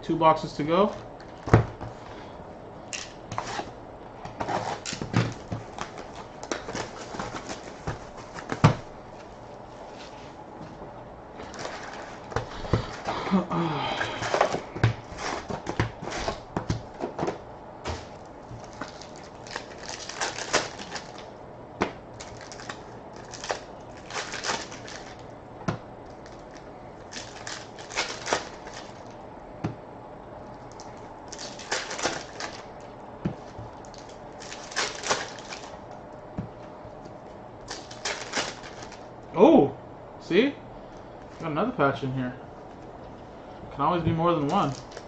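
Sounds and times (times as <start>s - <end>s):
faint steady hum: 0.0s - 45.0s
crinkly rustles and clicks: 4.3s - 10.3s, 11.4s - 13.1s, 18.0s - 21.3s, 22.2s - 25.3s, 26.0s - 29.2s, 30.4s - 39.1s, 44.4s - 45.0s
foil packs torn open: 4.5s - 8.7s, 11.5s - 12.3s, 18.6s - 21.3s, 22.2s - 25.2s, 26.2s - 29.2s, 30.7s - 32.7s, 33.8s - 35.8s, 37.6s - 39.0s, 44.6s - 45.0s.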